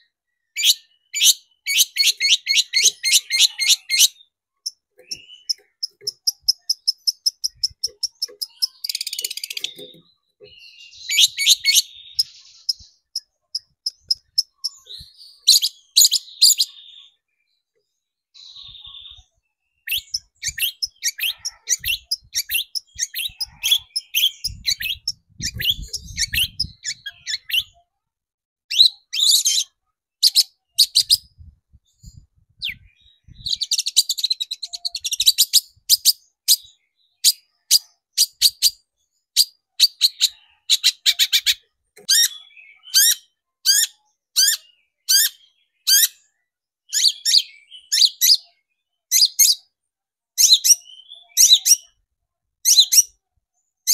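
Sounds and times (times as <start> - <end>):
bird chattering and calling: 0.6 - 17.0, 19.9 - 27.8, 39.4 - 46.3.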